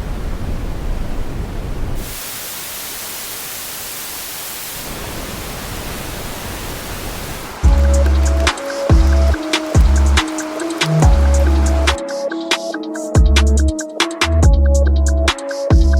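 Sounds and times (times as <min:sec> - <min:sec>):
white noise hiss: 0:00.0 - 0:12.0.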